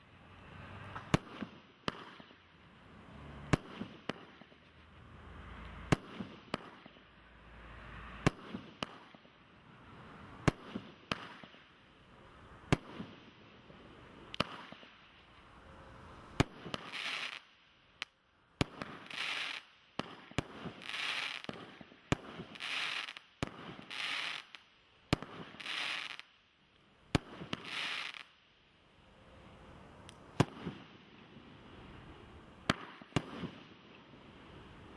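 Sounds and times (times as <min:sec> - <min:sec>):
firework bangs: 0:01.0 - 0:02.4, 0:03.4 - 0:04.6, 0:05.8 - 0:07.1, 0:16.4 - 0:17.5, 0:18.6 - 0:26.3, 0:27.1 - 0:28.3, 0:30.4 - 0:31.3, 0:32.6 - 0:33.9
firework hissing bursts: 0:16.8 - 0:17.5, 0:18.8 - 0:21.8, 0:22.4 - 0:24.6, 0:25.3 - 0:26.2, 0:27.4 - 0:28.3.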